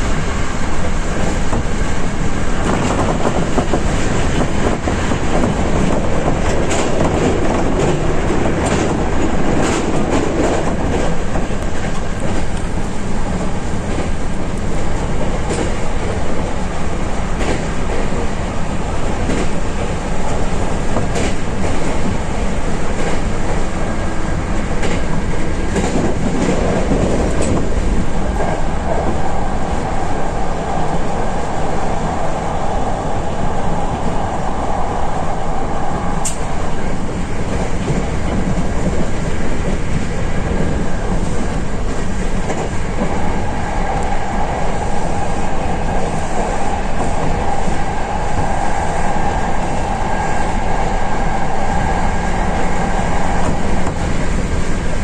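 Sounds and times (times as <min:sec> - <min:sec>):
clicks of wheels on rail: 0:00.0 - 0:55.0
train wheels rumbling on rail: 0:00.0 - 0:55.0
sharp click: 0:36.2 - 0:36.5.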